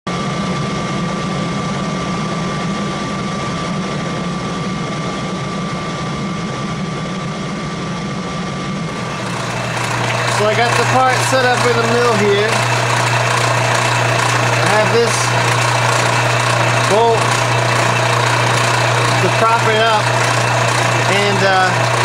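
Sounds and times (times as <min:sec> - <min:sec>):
milling machine motor hum: 0:08.9 - 0:22.0.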